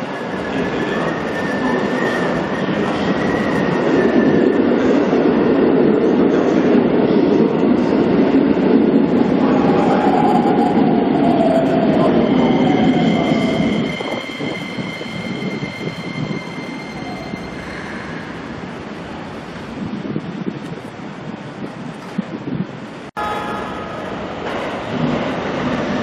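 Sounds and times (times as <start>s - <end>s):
electric train running noise: 8.9s - 19.6s.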